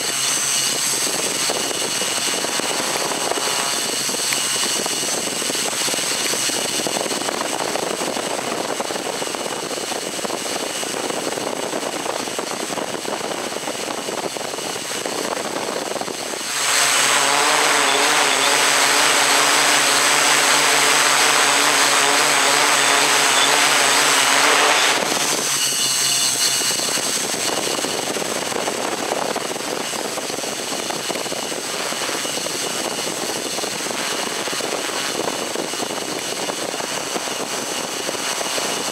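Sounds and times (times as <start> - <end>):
drone motors and propellers: 0.0 - 38.9.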